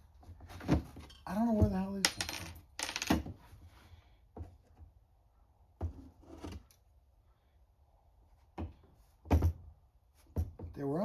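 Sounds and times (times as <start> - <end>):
small parts knocking on workbench: 1.6 - 3.4.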